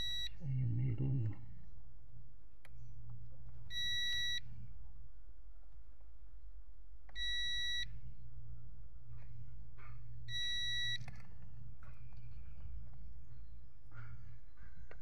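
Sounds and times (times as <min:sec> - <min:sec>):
multimeter continuity beeps: 0:00.0 - 0:00.4, 0:03.7 - 0:04.5, 0:07.2 - 0:08.0, 0:10.3 - 0:11.1.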